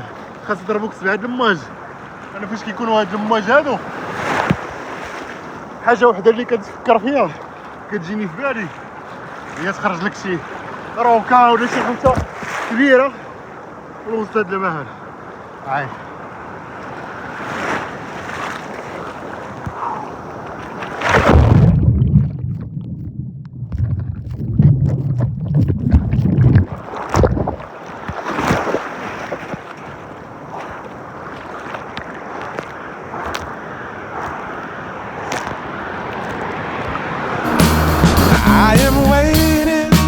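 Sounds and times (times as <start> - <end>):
sea water splashing: 0.0 - 23.1, 23.7 - 38.8
wind buffeting microphone: 21.2 - 27.6.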